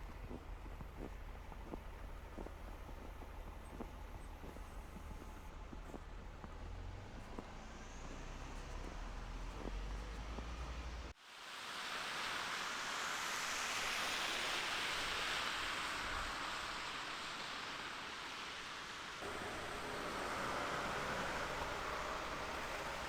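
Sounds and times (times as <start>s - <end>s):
snowstorm wind hiss: 0.0s - 23.0s.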